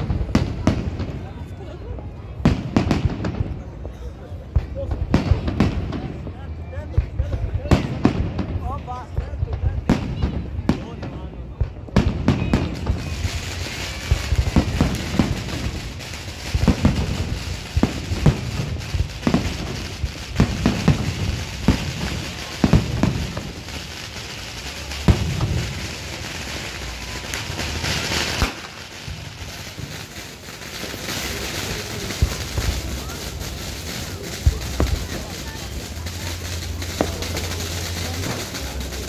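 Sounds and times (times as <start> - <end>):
firework shells booming: 9.5 - 39.0
high crackling hiss: 12.6 - 39.0.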